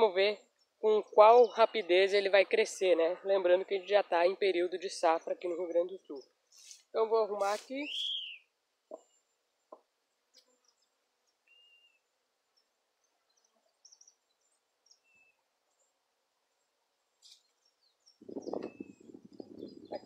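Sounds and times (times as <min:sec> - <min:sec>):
faint bird chirps: 0:07.8 - 0:15.5, 0:17.2 - 0:20.0.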